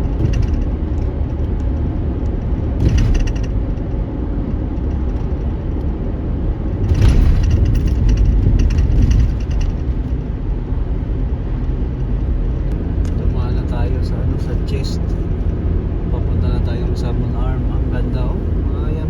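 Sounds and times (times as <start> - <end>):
rapid rattling and clatter: 0.0 - 12.6
vehicle rumbling on gravel road: 0.0 - 19.0.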